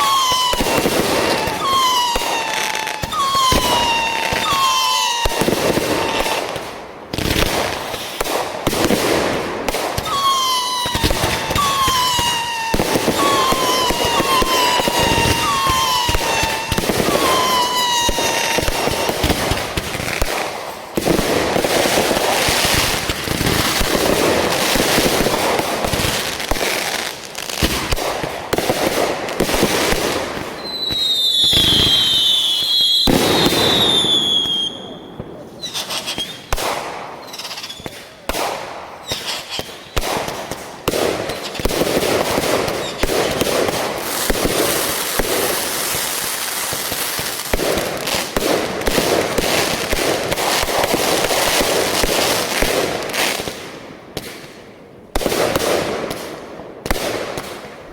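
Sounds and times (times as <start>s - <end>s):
descending firework whistle: 0.0s - 6.6s, 9.8s - 20.3s, 29.9s - 38.0s
fireworks bangs and crackles: 0.0s - 57.9s.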